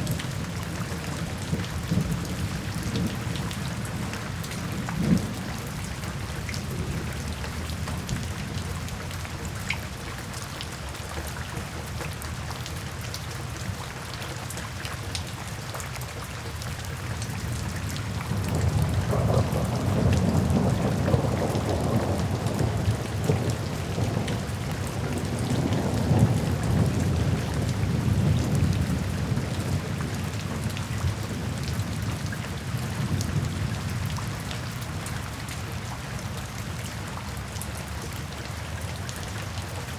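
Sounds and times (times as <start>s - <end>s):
rain pattering: 0.0s - 39.9s
thunder rumble: 17.9s - 30.7s.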